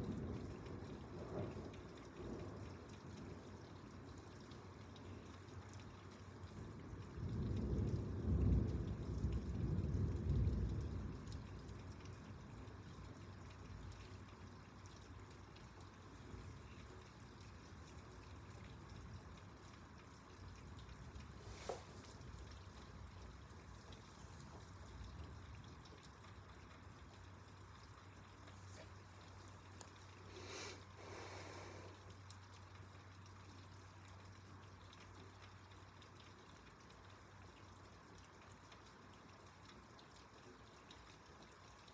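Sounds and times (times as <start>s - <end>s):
rain dripping and trickling: 0.0s - 41.9s
thunder rumbling: 7.1s - 12.2s.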